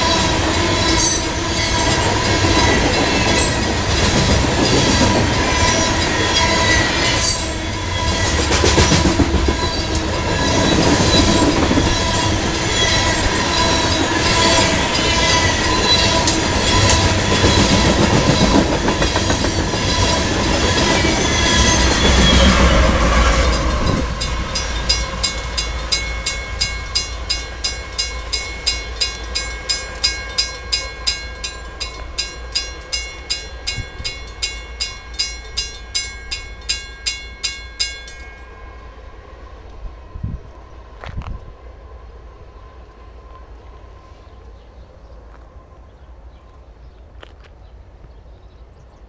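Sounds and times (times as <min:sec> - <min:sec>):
crossing bell ringing: 0:00.0 - 0:39.0
wheel squeal: 0:19.3 - 0:24.0.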